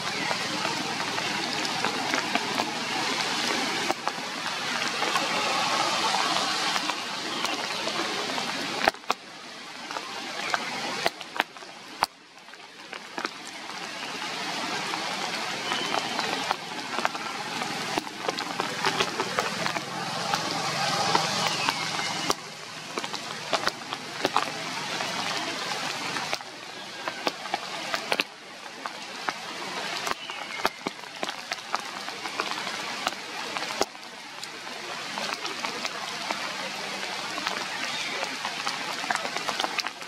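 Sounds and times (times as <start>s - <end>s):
rain hissing down: 0.0s - 40.0s
raindrops ticking: 0.0s - 40.0s.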